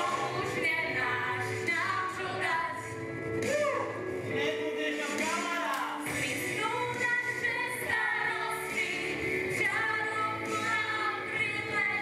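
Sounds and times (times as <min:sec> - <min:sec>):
backing music: 0:00.0 - 0:12.0
person singing: 0:03.4 - 0:09.1.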